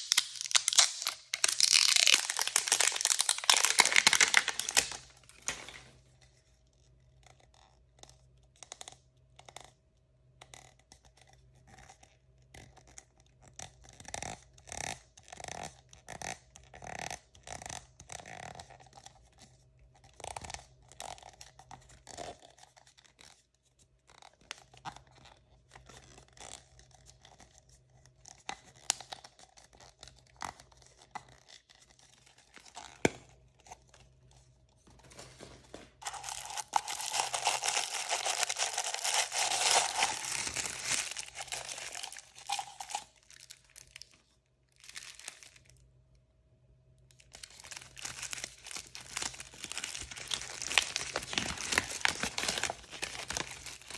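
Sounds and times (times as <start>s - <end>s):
plastic packaging crinkling: 0.0s - 6.0s, 34.8s - 45.8s, 47.1s - 53.9s.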